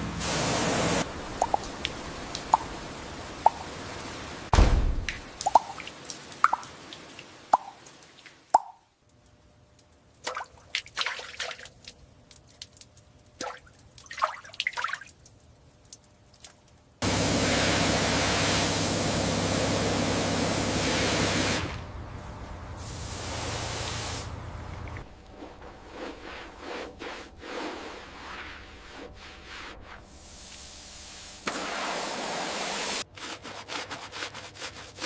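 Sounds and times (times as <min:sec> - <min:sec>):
loud hissing spray: 0:00.0 - 0:01.2, 0:17.0 - 0:21.8, 0:22.7 - 0:24.5, 0:30.1 - 0:33.0
low machine hum: 0:17.0 - 0:26.1.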